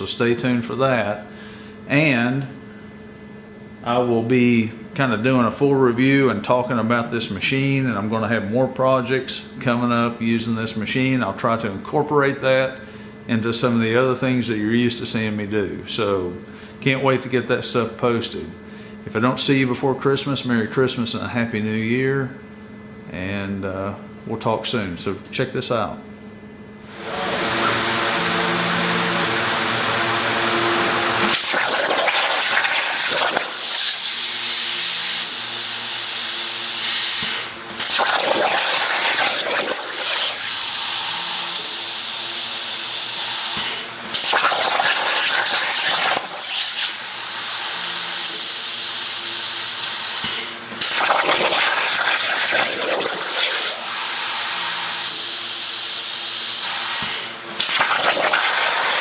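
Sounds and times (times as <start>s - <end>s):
plasma torch hissing: 31.2s - 41.8s, 42.6s - 54.2s, 55.9s - 59.0s.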